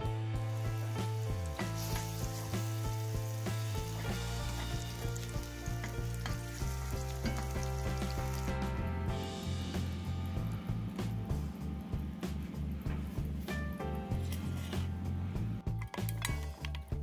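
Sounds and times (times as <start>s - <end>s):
background music with low notes: 0.0s - 17.0s
mushrooms sizzling in a pan: 0.4s - 10.5s.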